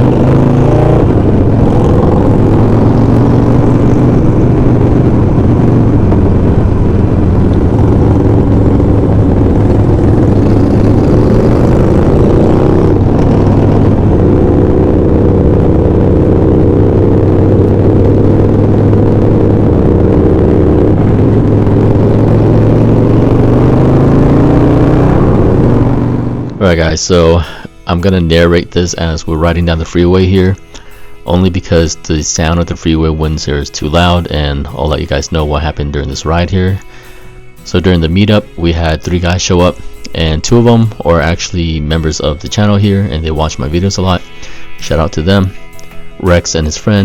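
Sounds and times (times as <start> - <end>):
wind buffeting microphone: 0.0 - 26.6
motorcycle engine running: 0.0 - 47.0.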